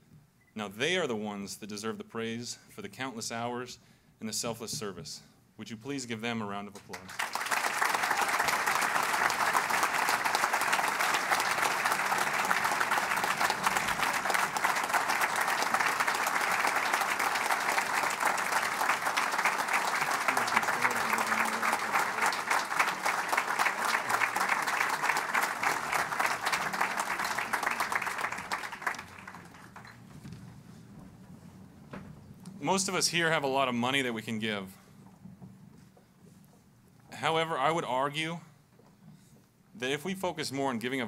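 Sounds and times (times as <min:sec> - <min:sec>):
audience applauding: 0:06.9 - 0:30.2.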